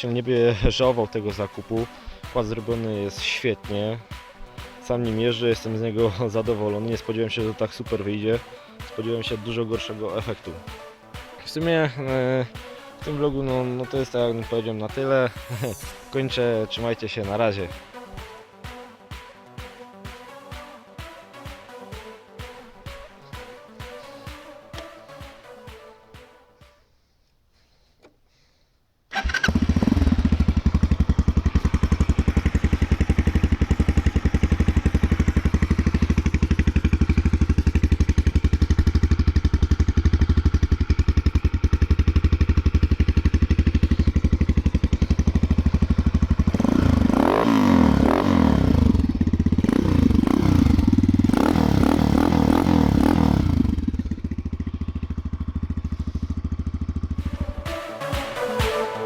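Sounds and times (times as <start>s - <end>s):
quad engine revving: 29.1s - 57.7s.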